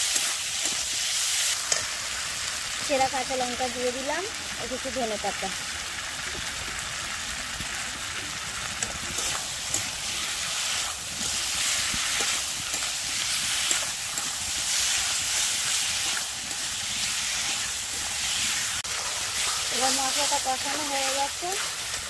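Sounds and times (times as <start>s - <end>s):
masala sizzling in a pan: 0.0s - 22.0s
metal spatula scraping: 10.8s - 22.0s.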